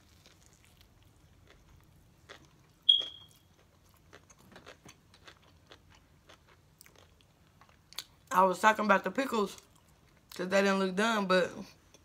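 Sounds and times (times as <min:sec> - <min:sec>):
crunchy chewing: 0:00.0 - 0:08.1
short high-pitched beep: 0:02.9 - 0:03.4.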